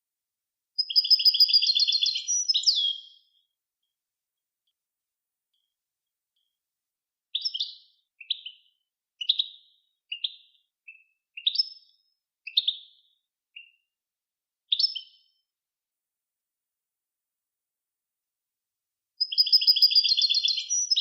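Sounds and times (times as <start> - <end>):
songbird chirping: 0.8 - 4.0, 7.3 - 13.9, 14.7 - 15.4, 19.2 - 21.0.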